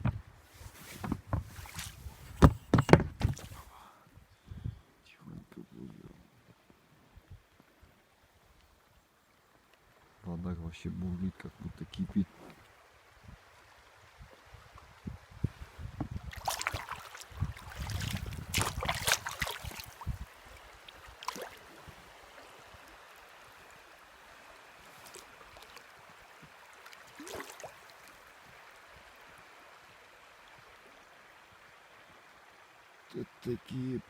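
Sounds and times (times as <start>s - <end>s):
knocks on boat: 0.0s - 0.2s, 1.0s - 3.6s
river water rushing: 16.3s - 33.1s.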